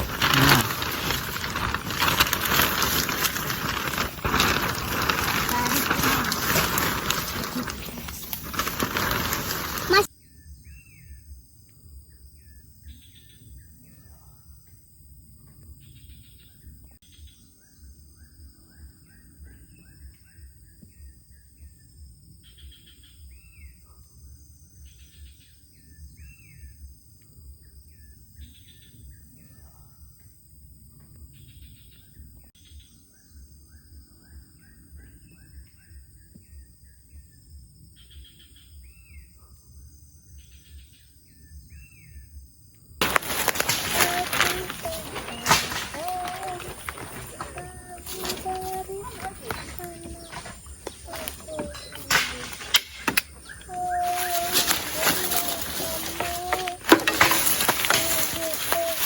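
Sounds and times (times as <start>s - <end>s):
birds calling: 43.0s - 59.0s.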